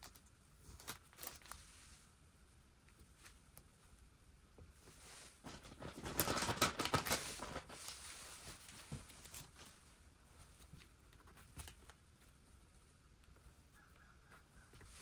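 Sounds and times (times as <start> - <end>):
rustling and tapping handling noise: 4.5 - 15.0.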